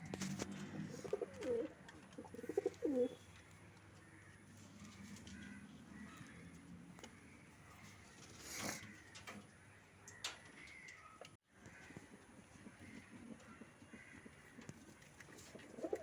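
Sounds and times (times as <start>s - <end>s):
rustle: 0.0s - 6.8s, 11.6s - 16.0s.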